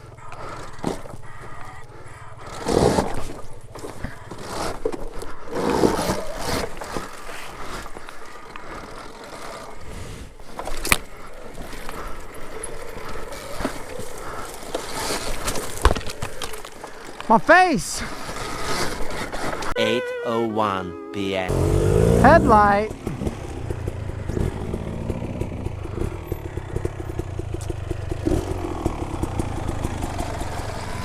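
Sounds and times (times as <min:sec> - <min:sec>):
dirt bike tyres scraping on dirt: 0:02.4 - 0:19.8.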